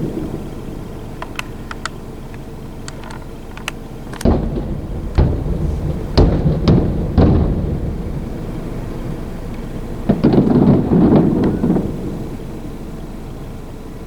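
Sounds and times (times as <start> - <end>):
firework shells booming: 0.0 - 12.6
faint sharp cracks: 1.2 - 11.2.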